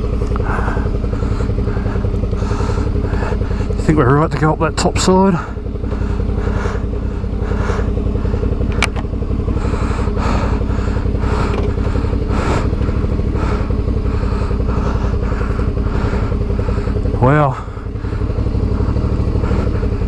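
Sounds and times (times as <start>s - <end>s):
motorcycle engine running: 0.0s - 20.0s
sharp click: 8.7s - 9.0s.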